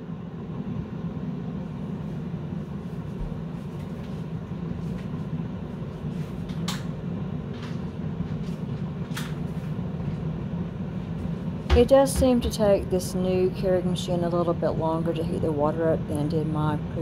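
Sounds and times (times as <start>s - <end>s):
coffee maker rumbling: 7.4s - 17.0s.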